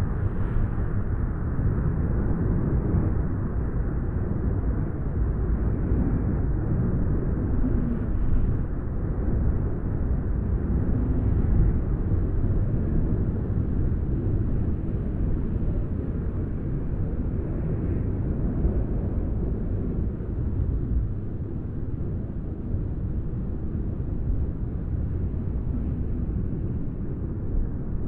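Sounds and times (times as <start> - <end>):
wind blowing: 7.2 - 8.8.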